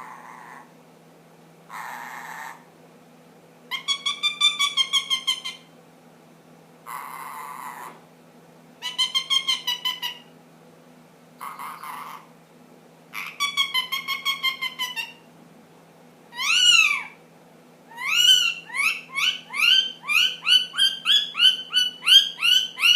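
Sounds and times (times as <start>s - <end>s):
parakeet raspy calls: 0.0s - 0.7s, 1.7s - 2.7s, 3.7s - 5.7s, 6.9s - 8.0s, 8.8s - 10.3s, 11.4s - 12.3s, 13.2s - 15.3s, 16.3s - 17.2s, 17.9s - 22.9s
parakeet rapid chattering: 11.4s - 12.3s, 13.2s - 15.2s, 18.0s - 22.9s.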